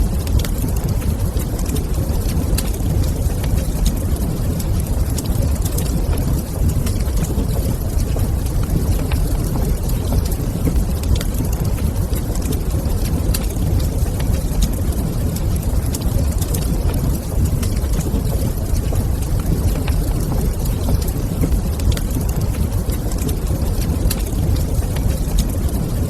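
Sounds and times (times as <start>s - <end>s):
fire low rumble: 0.0s - 26.0s
wood fire crackling: 0.0s - 26.0s.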